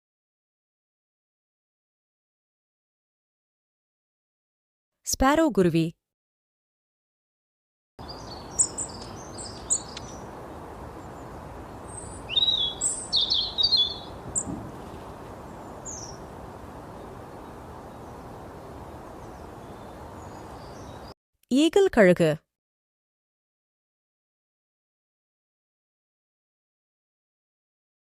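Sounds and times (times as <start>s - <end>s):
sparrow chirping: 8.0s - 21.1s.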